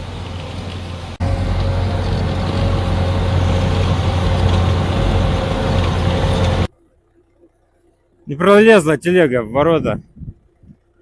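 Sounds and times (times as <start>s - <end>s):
tractor diesel engine under load: 0.0s - 6.7s.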